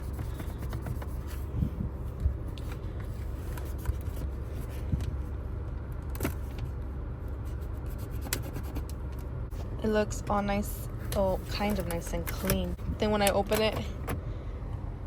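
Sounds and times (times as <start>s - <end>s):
clicks and knocks inside car: 0.0s - 1.5s
steady low rumble: 0.0s - 15.0s.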